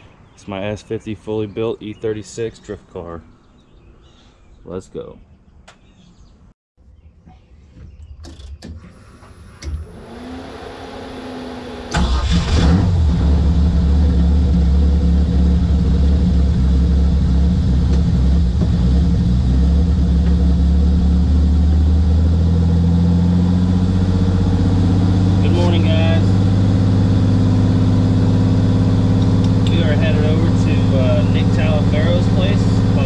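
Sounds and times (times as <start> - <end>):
car engine starting and idling: 8.4 - 33.0.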